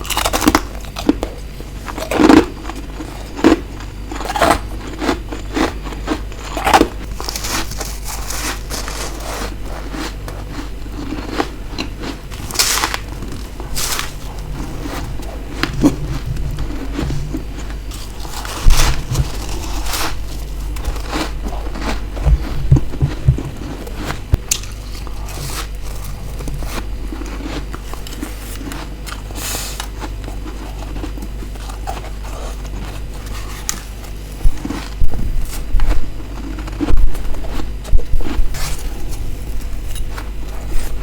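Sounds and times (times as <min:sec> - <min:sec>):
low steady hum: 0:00.0 - 0:41.0
crunching bites of frost: 0:03.4 - 0:31.8.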